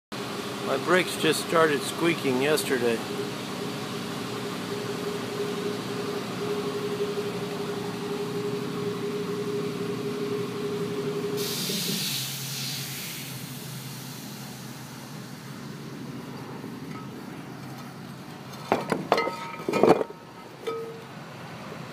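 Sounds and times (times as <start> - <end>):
brakes squealing: 0.2 - 21.4
air brake hiss: 11.4 - 15.4.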